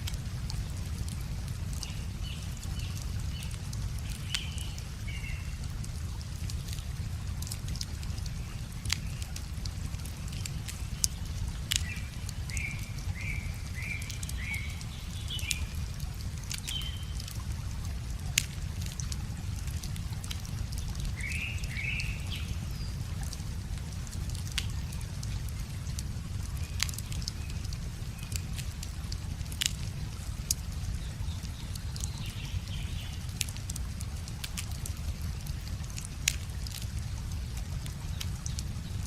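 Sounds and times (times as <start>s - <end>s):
river flowing: 0.0s - 39.0s
wood fire crackling and popping: 0.0s - 39.0s.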